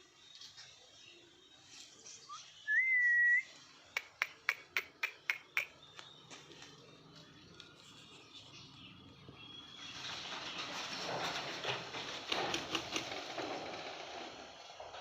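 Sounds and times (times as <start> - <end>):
short rising whistle: 2.7 - 3.5
sharp clicks: 4.0 - 6.2.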